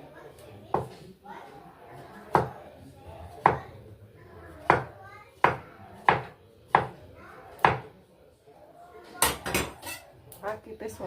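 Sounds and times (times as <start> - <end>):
knife chopping on cutting board: 4.6 - 7.0, 7.6 - 7.9.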